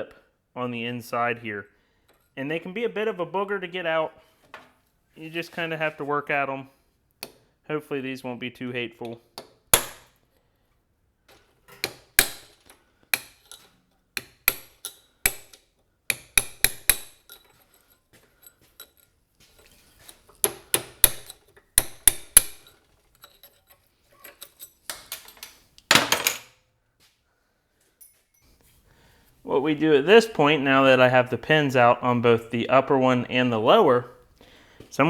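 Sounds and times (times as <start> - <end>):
hammer tapping on steel: 14.2 - 17.3, 20.4 - 22.7.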